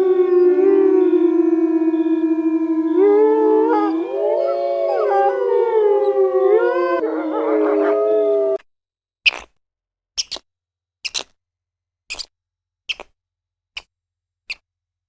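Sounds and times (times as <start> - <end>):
dogs howling: 0.0 - 8.6.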